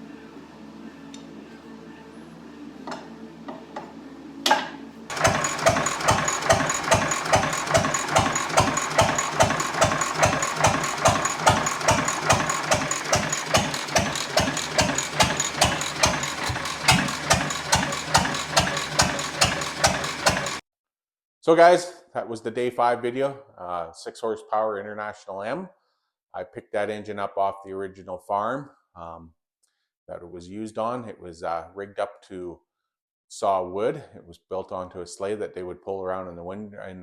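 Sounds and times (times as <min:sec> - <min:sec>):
single-cylinder engine exhaust beats: 0:05.1 - 0:20.6.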